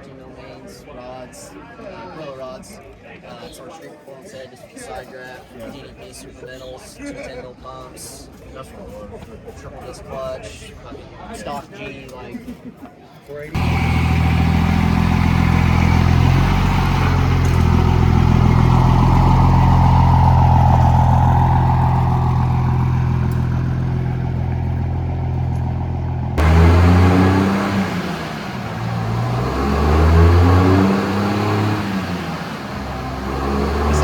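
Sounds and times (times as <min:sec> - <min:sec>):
diesel truck engine running: 0:13.6 - 0:34.0.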